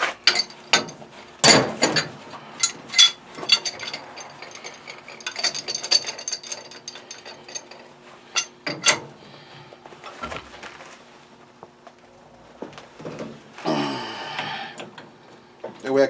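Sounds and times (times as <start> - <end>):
metal tools clanking: 0.1 - 9.1.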